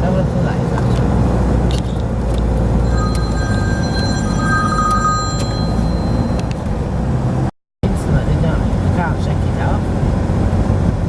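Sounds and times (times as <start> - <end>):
low road rumble inside car: 0.0 - 11.0
thin electronic tone: 2.8 - 6.5.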